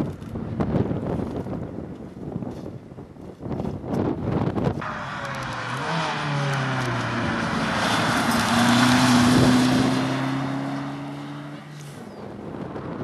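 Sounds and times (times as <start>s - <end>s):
road and wind noise: 0.0s - 13.0s
wind buffeting microphone: 0.0s - 13.0s
rally car engine accelerating: 4.8s - 12.3s.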